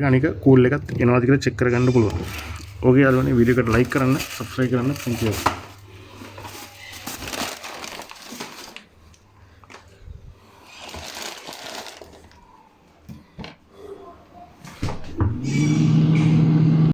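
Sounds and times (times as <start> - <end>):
rustling and clattering: 2.2 - 8.9.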